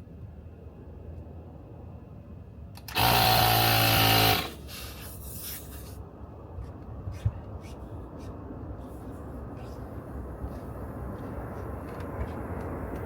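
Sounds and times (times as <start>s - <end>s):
air compressor hissing: 2.9s - 5.6s.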